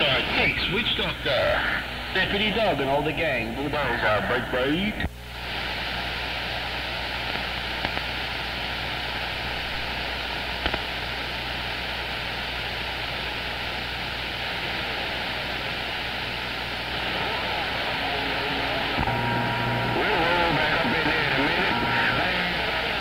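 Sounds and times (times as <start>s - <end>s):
radio static hiss: 0.0s - 23.0s
faint click: 7.2s - 8.1s, 10.6s - 10.8s.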